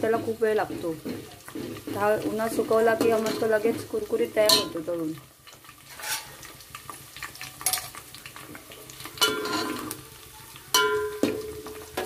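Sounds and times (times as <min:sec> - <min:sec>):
spoon scraping and clinking on pan: 0:00.0 - 0:04.8, 0:05.9 - 0:06.4, 0:07.4 - 0:08.0, 0:09.0 - 0:10.0, 0:10.7 - 0:12.0
onions sizzling in oil: 0:00.0 - 0:12.0.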